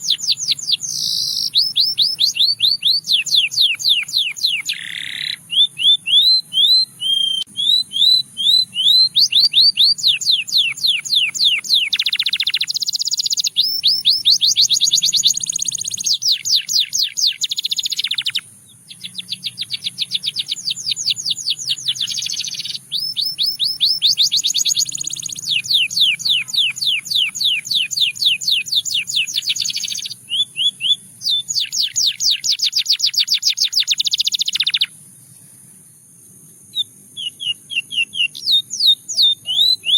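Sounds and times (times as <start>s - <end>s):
canary singing: 0.0s - 35.0s, 36.7s - 39.9s.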